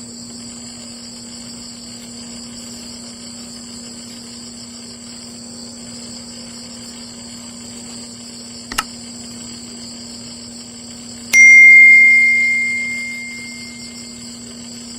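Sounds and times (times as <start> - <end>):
bright bell ding: 11.4 - 14.1.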